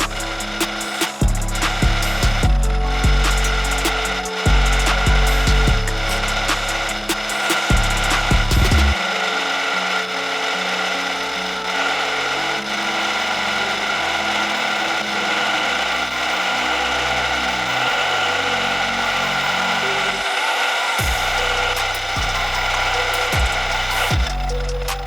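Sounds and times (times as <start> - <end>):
music with stepping bass line: 0.0 - 9.0, 21.0 - 25.0
wood chipper motor whine and grinding: 0.0 - 24.7.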